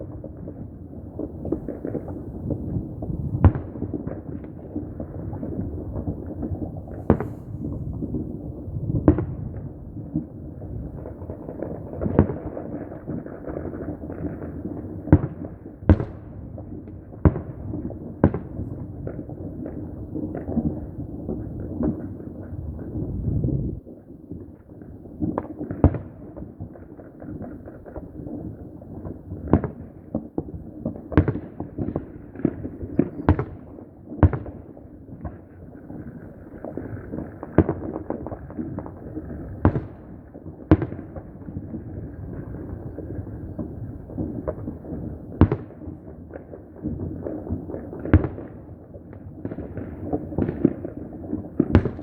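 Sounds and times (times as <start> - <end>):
fireworks crackling and rumbling: 0.0 - 52.0
sharp firecracker bangs: 6.8 - 8.2, 51.6 - 52.0.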